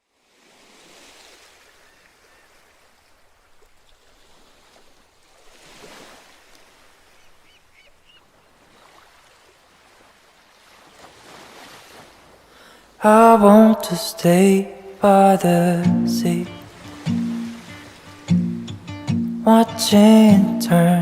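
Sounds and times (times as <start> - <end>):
ocean waves washing in: 0.2 - 2.4, 8.6 - 21.0.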